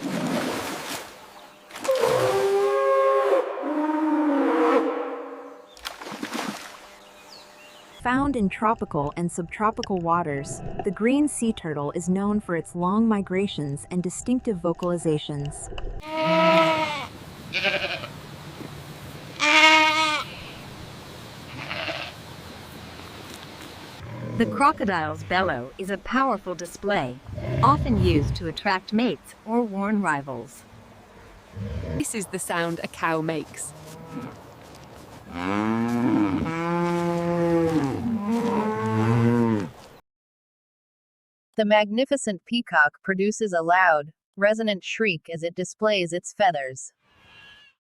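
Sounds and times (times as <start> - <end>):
animal wavering cry: 16.0 - 18.1
cow mooing: 16.0 - 18.1, 35.3 - 39.7.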